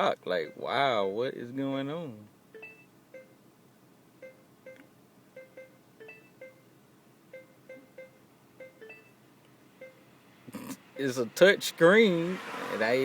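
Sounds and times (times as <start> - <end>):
short electronic beeps: 2.5 - 3.4, 4.2 - 6.7, 7.3 - 9.2, 9.8 - 10.1.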